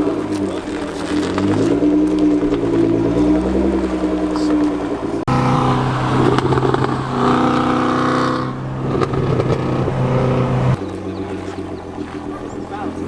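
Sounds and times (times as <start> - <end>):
performance car exhaust: 0.0 - 13.0.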